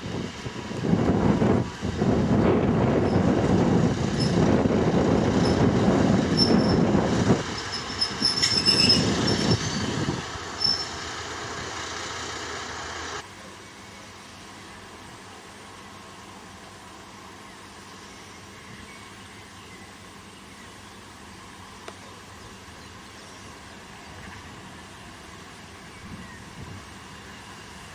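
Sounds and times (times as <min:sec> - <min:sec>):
train wheels rumbling on track: 0:00.0 - 0:13.3, 0:21.0 - 0:27.9
wheel squeals: 0:03.0 - 0:11.2.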